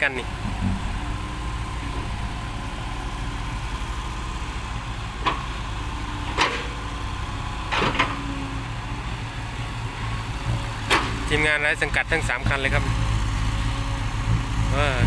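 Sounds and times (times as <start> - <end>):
truck engines rumbling: 0.0 - 15.0.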